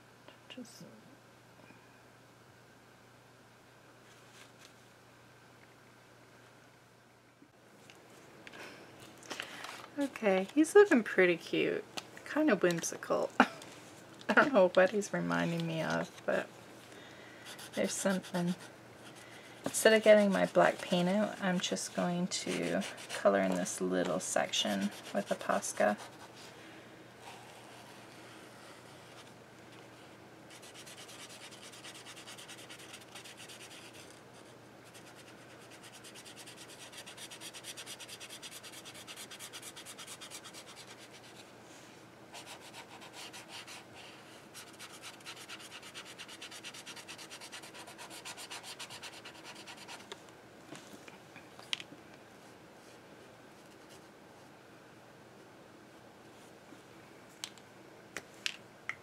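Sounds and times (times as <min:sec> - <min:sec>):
marker rubbing on paper: 0:17.5 - 0:18.7, 0:30.5 - 0:34.1, 0:34.9 - 0:41.4, 0:44.5 - 0:50.0.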